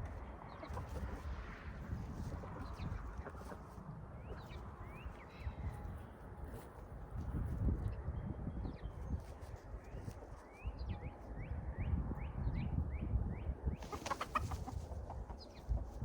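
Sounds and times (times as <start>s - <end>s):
chickens calling: 0.1s - 1.5s, 2.2s - 5.2s, 13.8s - 16.0s.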